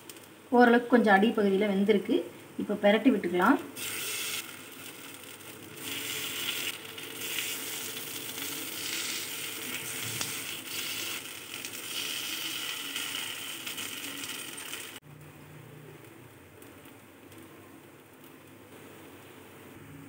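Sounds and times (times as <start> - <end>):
food sizzling in oil: 3.8 - 15.0.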